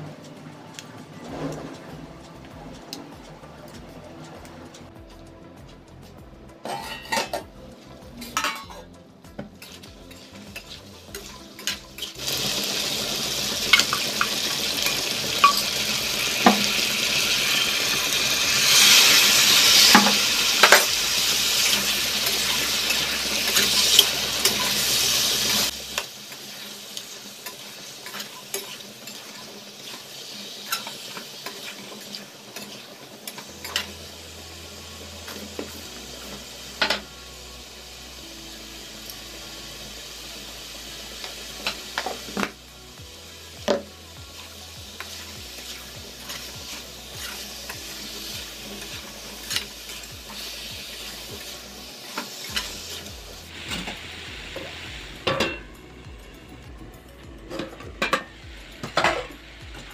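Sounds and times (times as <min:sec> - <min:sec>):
steel pot lid clinking: 0:08.4 - 0:08.9, 0:15.3 - 0:16.8, 0:55.2 - 0:55.6
spatula stirring and scraping pan: 0:09.4 - 0:34.1, 0:43.6 - 0:55.6
vegetables sizzling loudly: 0:09.6 - 0:59.9.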